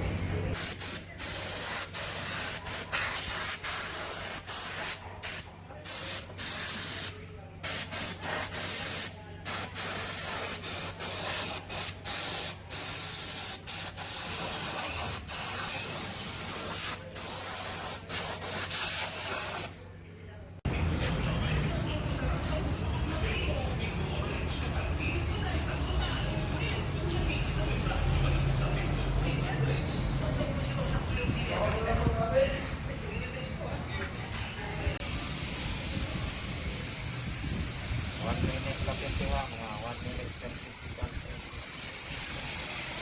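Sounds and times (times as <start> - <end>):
spray paint hissing: 0.5 - 19.8, 35.0 - 43.0.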